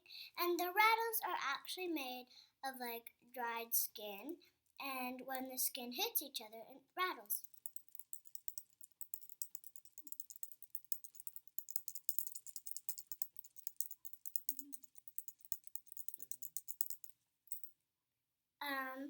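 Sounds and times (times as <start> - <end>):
rattlesnake rattle clicking: 7.4 - 17.7.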